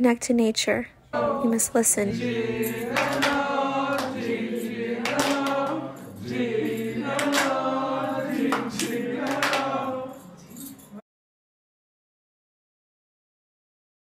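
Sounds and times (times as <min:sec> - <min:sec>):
choir chanting long notes: 0:01.1 - 0:10.8.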